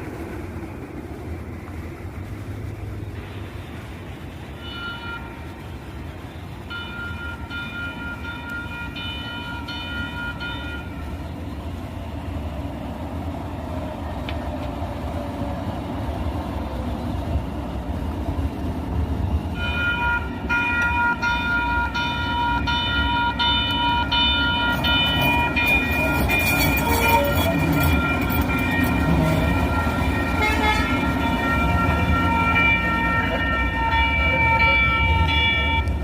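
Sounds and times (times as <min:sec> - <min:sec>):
train rumbling: 0:00.0 - 0:36.0
high ringing warning signal: 0:06.6 - 0:11.0, 0:19.6 - 0:36.0.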